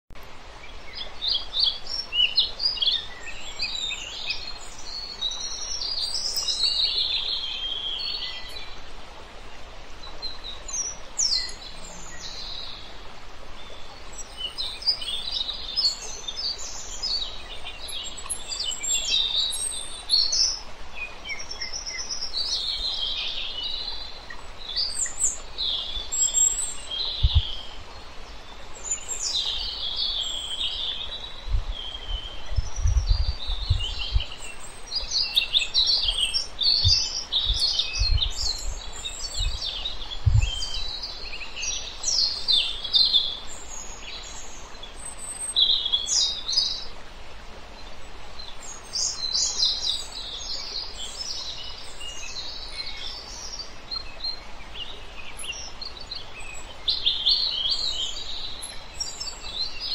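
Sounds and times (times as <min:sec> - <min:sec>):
birds chirping: 0:00.1 - 0:08.8, 0:09.4 - 0:46.9
steady background hiss: 0:00.2 - 0:59.9.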